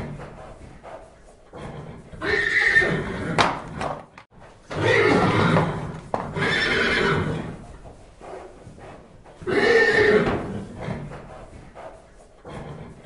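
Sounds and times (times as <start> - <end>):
horses whinnying: 1.6 - 4.0, 4.7 - 7.6, 9.4 - 11.2.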